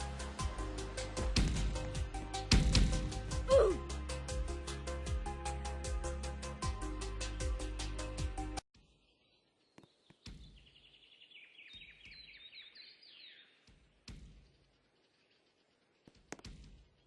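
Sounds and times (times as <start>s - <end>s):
music: 0.0s - 8.6s
sharp knocks: 2.5s - 3.2s
outdoor background noise: 8.8s - 17.0s
bird high chirps: 9.0s - 13.6s.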